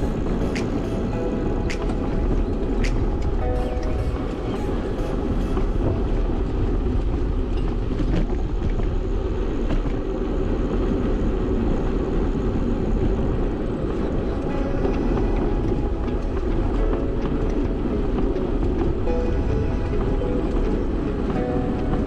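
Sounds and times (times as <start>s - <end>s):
bicycle rumbling and rattling: 5.4s - 21.2s.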